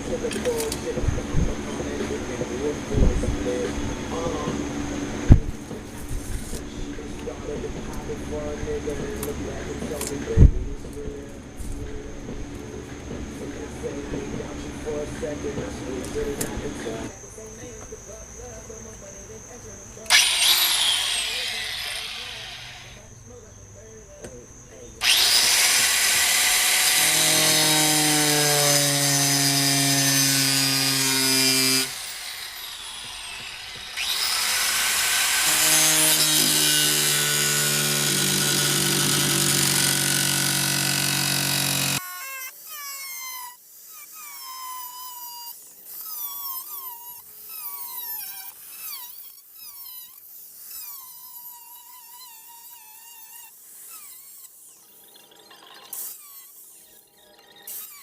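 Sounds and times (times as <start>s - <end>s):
quiet scattered sounds: 0.0s - 26.2s
angle grinder cutting metal: 20.1s - 23.0s, 25.0s - 58.0s.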